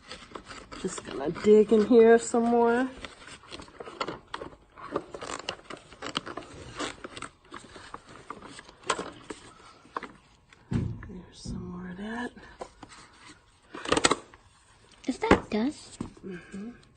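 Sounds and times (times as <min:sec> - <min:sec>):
loud knock: 0:10.7 - 0:11.3.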